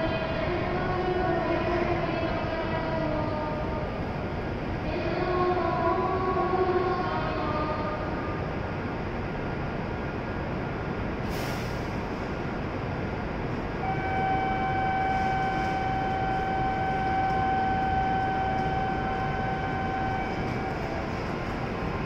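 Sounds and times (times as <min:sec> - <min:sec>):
train hum and hiss: 0:00.0 - 0:22.0
steady whine with overtones: 0:13.0 - 0:22.0.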